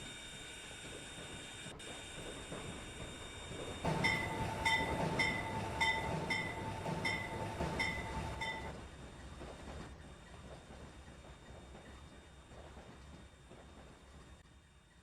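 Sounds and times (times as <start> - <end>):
train rumble: 1.2 - 14.7
locomotive bell ringing: 3.8 - 8.8.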